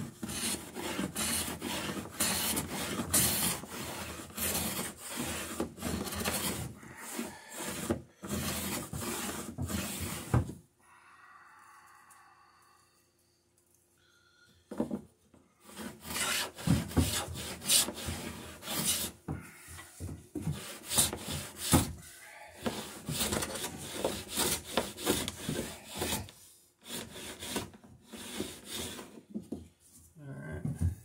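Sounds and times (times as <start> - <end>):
hand tool rasping wood: 0.0 - 10.4, 15.6 - 19.4, 20.0 - 29.2.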